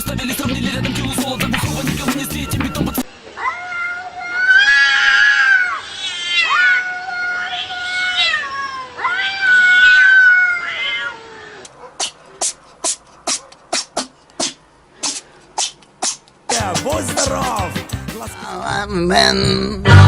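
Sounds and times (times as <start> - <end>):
cat yowling: 3.4 - 12.2.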